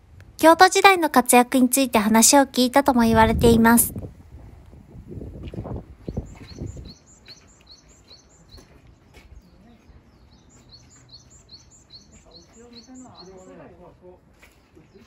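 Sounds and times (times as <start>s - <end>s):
bird chirping: 6.0s - 13.7s.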